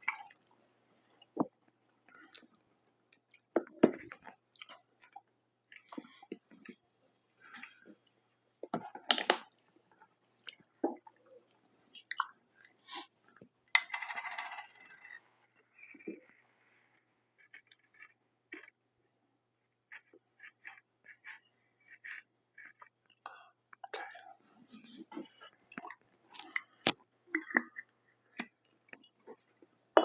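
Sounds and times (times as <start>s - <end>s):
person chewing food: 1.2s - 6.8s, 19.9s - 29.8s
wet mouth clicks: 12.0s - 13.1s.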